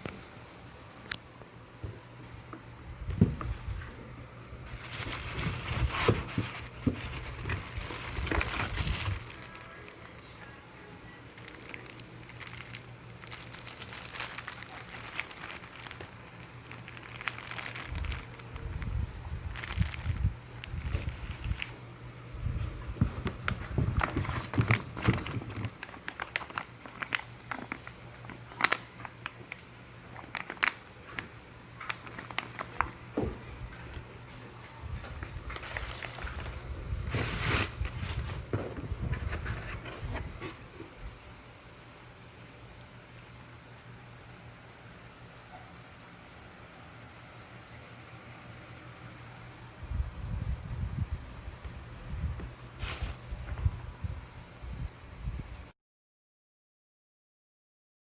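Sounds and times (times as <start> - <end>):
packaging rustling and crinkling: 4.6 - 10.6, 11.3 - 21.8, 22.6 - 41.0, 52.7 - 53.7.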